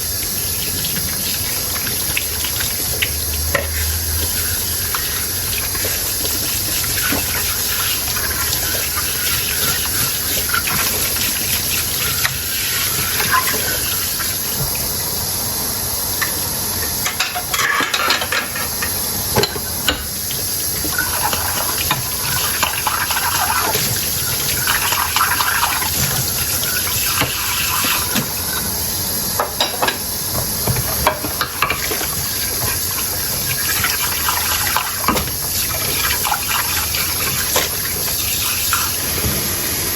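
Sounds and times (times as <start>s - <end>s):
running tap water: 0.0s - 39.9s
dishes clinking: 17.0s - 20.0s.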